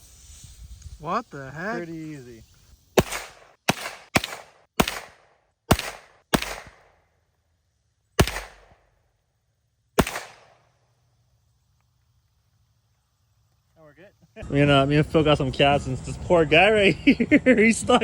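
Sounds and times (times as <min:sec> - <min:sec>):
gunshots echoing: 0:03.0 - 0:07.0, 0:08.2 - 0:08.8, 0:10.0 - 0:10.6.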